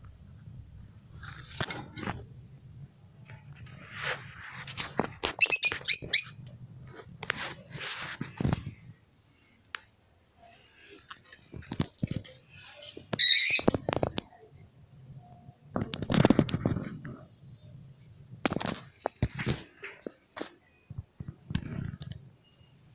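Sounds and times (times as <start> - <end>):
birds chirping shrilly: 5.4 - 6.4.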